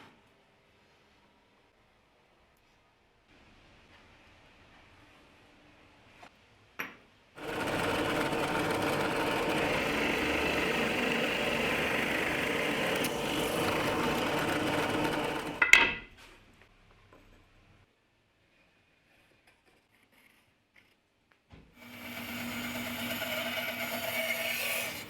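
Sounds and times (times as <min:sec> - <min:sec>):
small electric power tool running: 0:07.4 - 0:15.6, 0:21.8 - 0:25.0.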